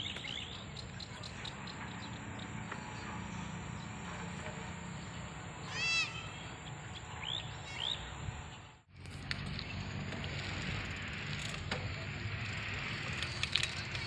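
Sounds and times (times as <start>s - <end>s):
bicycle ride rushing noise: 6.8s - 14.0s.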